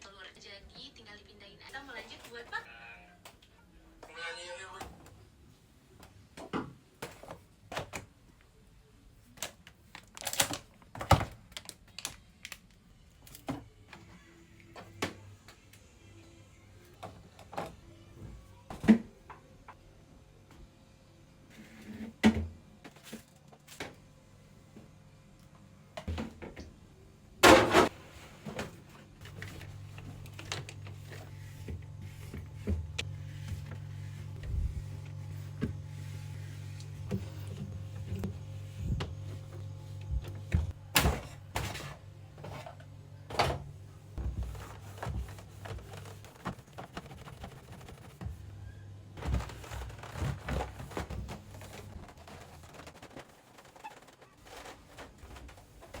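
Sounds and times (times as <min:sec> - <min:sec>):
steady low hum: 0:26.9 - 0:52.6.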